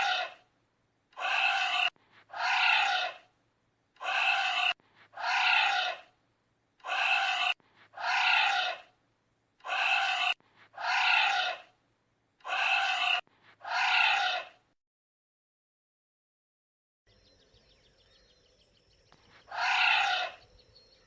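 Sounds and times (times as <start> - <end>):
anteater breathy cries: 0.0 - 0.4, 1.2 - 3.2, 12.4 - 14.5, 19.5 - 20.4.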